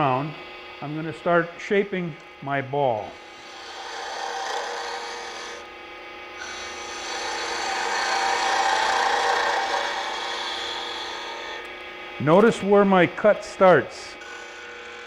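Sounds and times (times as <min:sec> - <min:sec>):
lathe humming: 0:00.0 - 0:15.0
gouge scraping wood on lathe: 0:03.1 - 0:05.7, 0:06.4 - 0:15.0.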